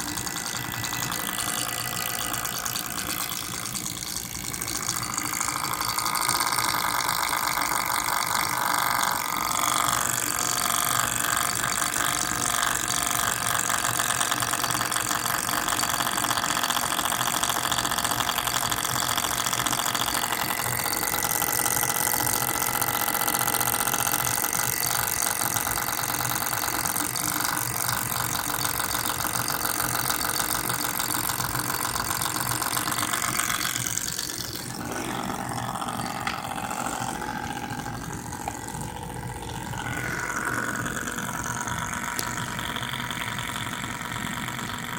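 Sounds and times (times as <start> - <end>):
laptop fan rattling: 0.0 - 44.9.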